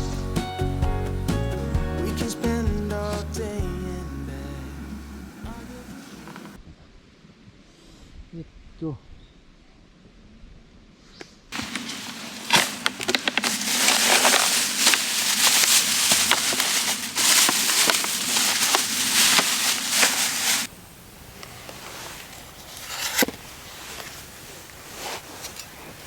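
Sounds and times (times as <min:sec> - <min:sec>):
campfire crackling and popping: 0:11.6 - 0:20.7.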